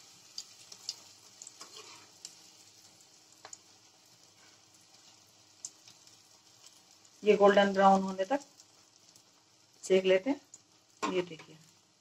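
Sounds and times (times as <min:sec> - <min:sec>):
bread sizzling in ghee: 0:00.0 - 0:12.0
metal spoon turning bread: 0:00.4 - 0:02.5
sharp crackles and clicks: 0:03.3 - 0:03.7, 0:04.9 - 0:11.9.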